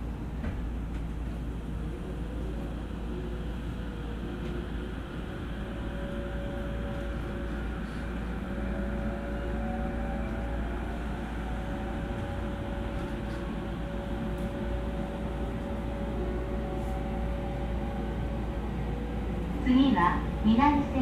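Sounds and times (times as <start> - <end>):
train wheels rumbling on track: 0.0 - 21.0.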